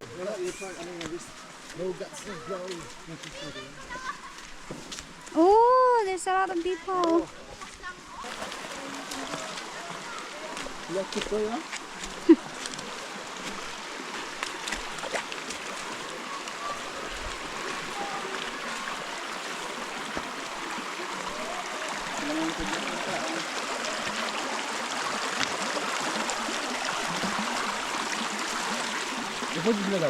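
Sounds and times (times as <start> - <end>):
river water rushing over rocks: 8.2 - 30.0.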